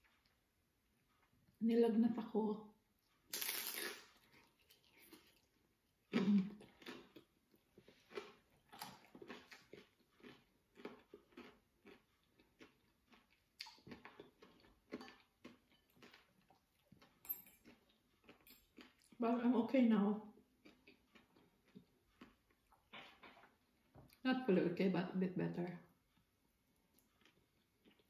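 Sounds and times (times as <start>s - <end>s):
chewing crunchy food: 3.0s - 19.3s, 20.3s - 24.2s, 26.0s - 28.0s.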